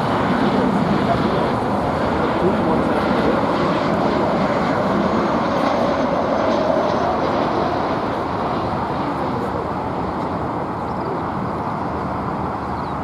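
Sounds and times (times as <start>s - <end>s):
jet airliner engines passing: 0.0s - 13.0s.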